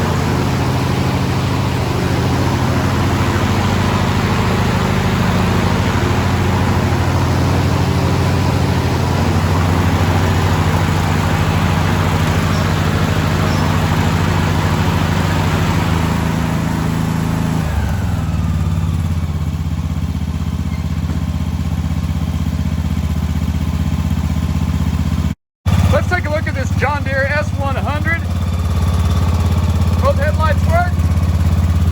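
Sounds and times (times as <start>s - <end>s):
short falling whine: 0.0s - 17.9s
lawn tractor engine running: 0.0s - 31.9s.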